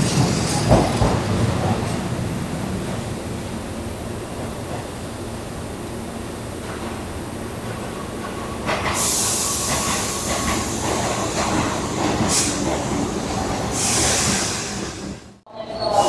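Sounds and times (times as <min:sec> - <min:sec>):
train wheels rumbling on rails: 0:00.0 - 0:15.4
loud hiss: 0:08.9 - 0:11.4, 0:13.8 - 0:15.2.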